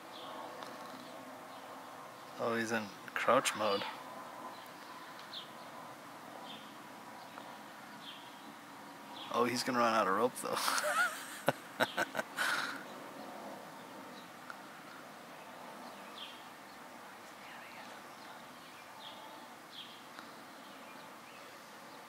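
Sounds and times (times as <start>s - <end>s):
faint hiss: 6.5s - 22.0s
faint bird chirps: 11.8s - 22.0s.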